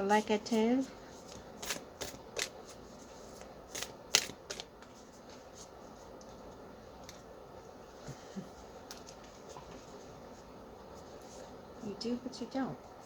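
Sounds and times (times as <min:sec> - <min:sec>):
cards being shuffled: 0:01.3 - 0:05.4.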